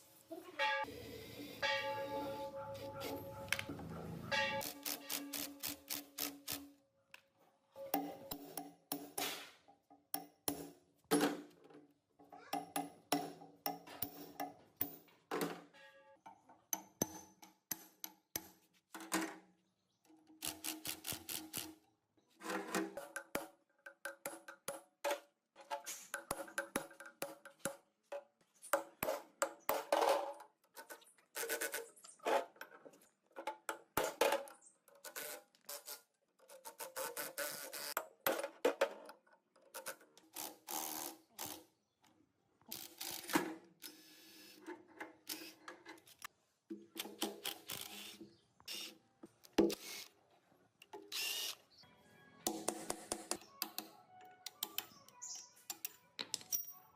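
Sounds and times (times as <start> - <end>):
metal parts tapping and clanking: 55.6 - 56.9.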